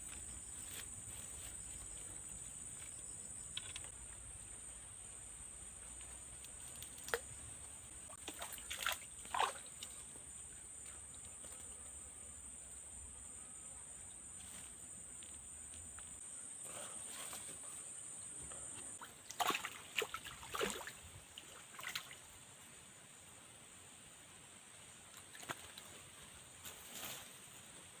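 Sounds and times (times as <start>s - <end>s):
water splashing: 8.0s - 10.1s, 19.0s - 22.2s.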